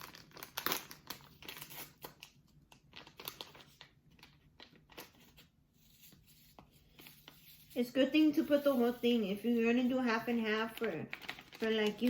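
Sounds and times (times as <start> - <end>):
crinkling wrapper being opened: 0.0 - 7.8, 10.7 - 12.0.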